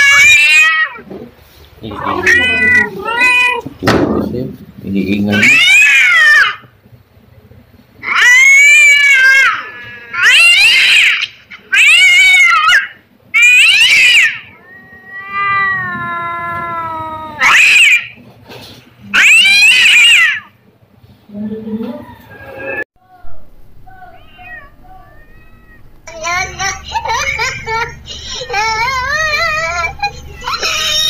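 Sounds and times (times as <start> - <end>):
cat meowing: 0.0 - 1.1, 1.9 - 3.8, 5.3 - 6.6, 8.0 - 18.2, 19.1 - 20.5, 23.9 - 26.0.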